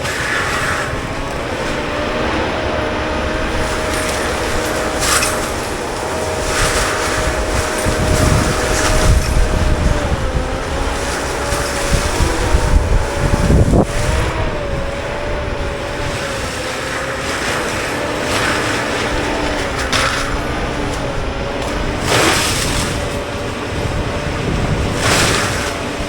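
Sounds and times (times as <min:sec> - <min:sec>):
machine drone with whine: 0:00.0 - 0:26.0.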